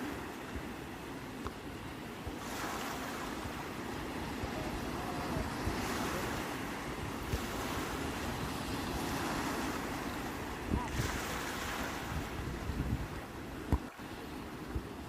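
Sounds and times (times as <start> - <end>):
sea waves breaking: 0.0 - 15.0
wind rumbling on microphone: 0.0 - 15.0.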